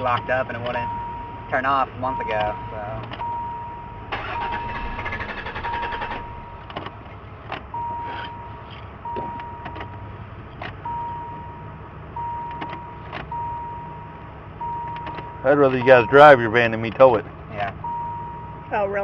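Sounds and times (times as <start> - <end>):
car warning chime: 0.0 - 6.7, 7.7 - 10.0, 10.8 - 16.8, 17.8 - 19.0
handling clicks and knocks: 2.4 - 3.2, 6.6 - 7.7
low hum: 3.2 - 8.8.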